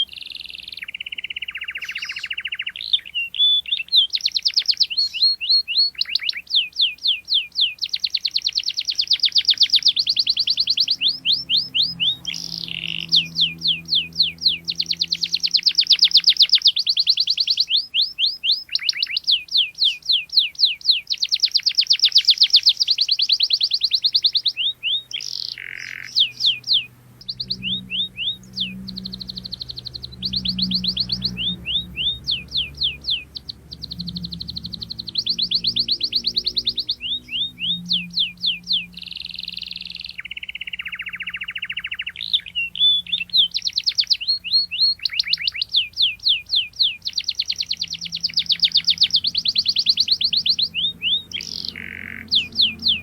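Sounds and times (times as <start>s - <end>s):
canary singing trills: 0.0s - 53.0s.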